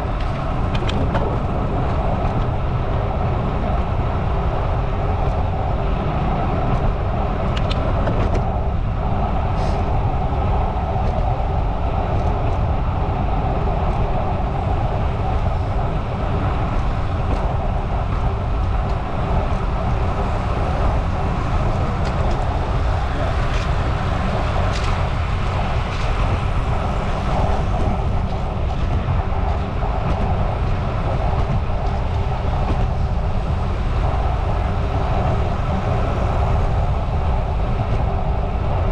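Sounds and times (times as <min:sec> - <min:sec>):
wind rushing over microphone: 0:00.0 - 0:38.9
bicycle tyres on pavement: 0:14.6 - 0:38.5.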